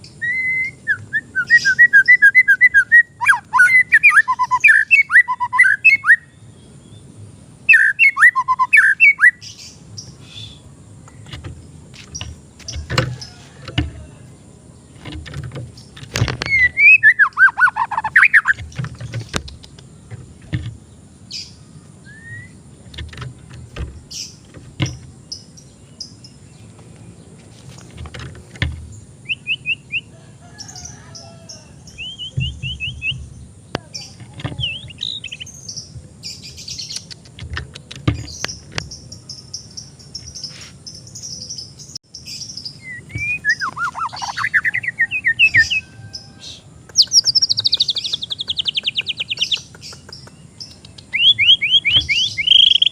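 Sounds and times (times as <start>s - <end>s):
songbird singing: 0.0s - 52.9s
sharp clicks: 18.1s - 20.8s, 36.9s - 38.9s, 46.9s - 51.1s
low background rumble: 30.7s - 36.8s.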